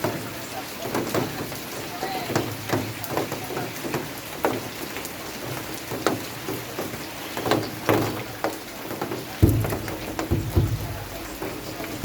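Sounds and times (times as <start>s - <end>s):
large raindrops striking surface: 0.0s - 12.0s
rain hissing: 0.0s - 12.0s
dull thump: 9.4s - 12.0s.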